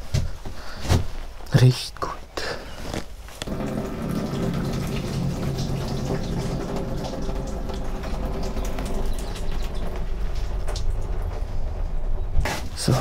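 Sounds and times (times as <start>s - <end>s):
urine stream splashing into tank: 3.4s - 13.0s.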